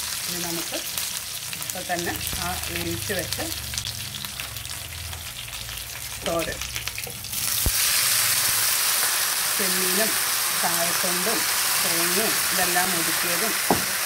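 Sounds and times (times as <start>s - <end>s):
seeds crackling in hot oil: 0.0s - 14.0s
light knock on pan: 13.7s - 13.9s.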